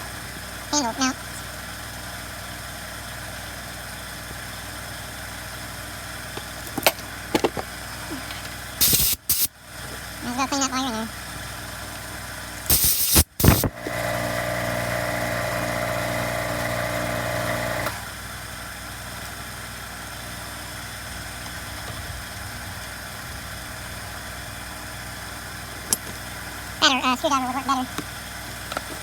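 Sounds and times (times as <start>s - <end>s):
spray air blast: 8.8s - 9.5s, 12.7s - 13.7s
motor humming: 12.5s - 18.2s.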